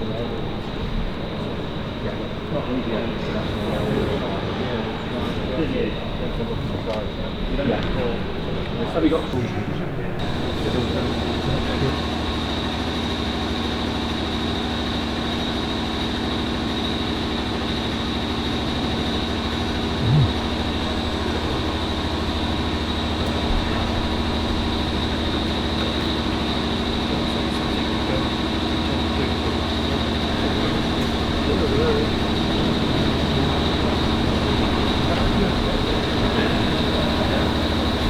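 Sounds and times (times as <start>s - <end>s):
mechanical hum and hiss: 0.0s - 38.0s
thin high whine: 30.3s - 38.0s.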